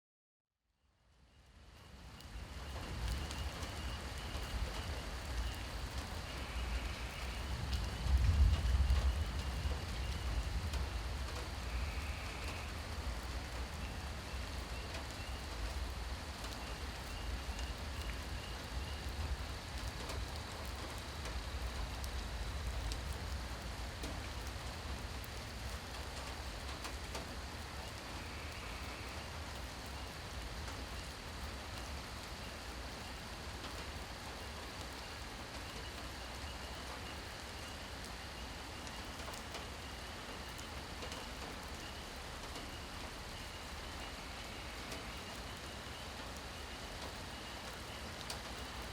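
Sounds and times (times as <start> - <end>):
rain falling: 1.3 - 48.9
raindrop ticks: 1.7 - 48.9.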